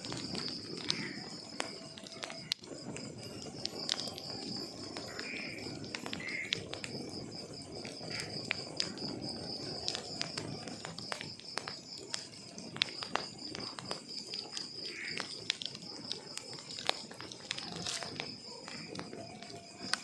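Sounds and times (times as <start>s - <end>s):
crickets chirping: 0.0s - 20.0s
wood fire crackling: 0.0s - 20.0s.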